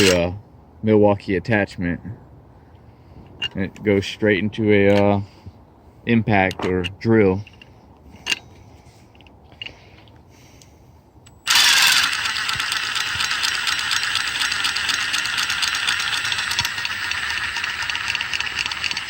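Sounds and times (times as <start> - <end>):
power drill whining and clattering: 0.0 - 0.2, 11.3 - 19.0.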